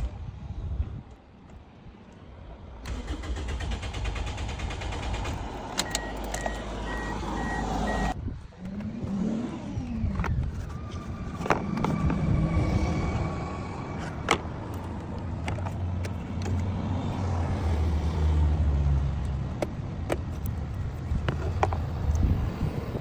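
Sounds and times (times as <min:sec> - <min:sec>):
sharp clicks: 0:02.8 - 0:07.0
engine cranking on starter motor: 0:02.8 - 0:10.5
beeping tone: 0:05.8 - 0:08.2.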